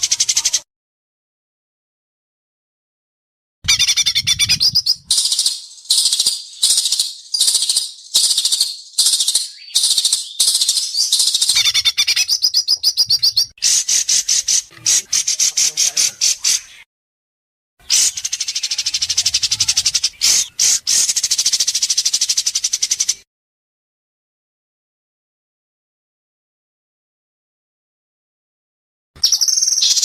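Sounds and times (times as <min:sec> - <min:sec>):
bird singing rapid trills: 0:03.7 - 0:16.9, 0:17.8 - 0:23.2, 0:29.2 - 0:30.0.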